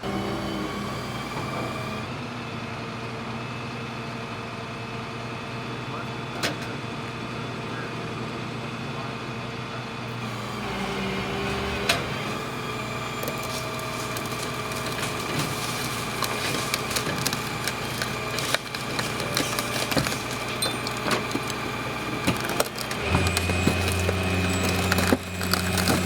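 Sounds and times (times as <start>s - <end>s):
vehicle engines idling: 10.2s - 26.0s.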